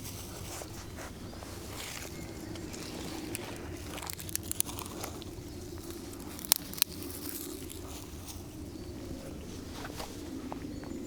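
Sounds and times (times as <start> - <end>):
dry sticks crunching and crackling: 0.0 - 11.0
sticks snapping: 1.9 - 8.4.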